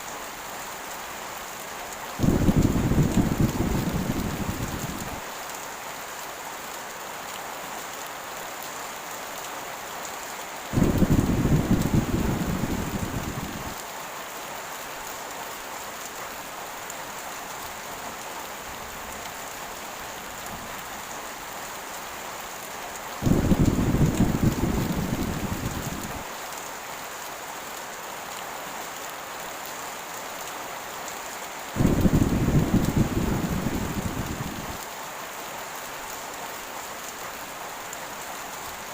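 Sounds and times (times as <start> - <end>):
heavy rain falling: 0.0 - 38.9
low rumbles of thunder: 2.2 - 5.2, 10.8 - 13.8, 23.2 - 26.2, 31.8 - 34.8.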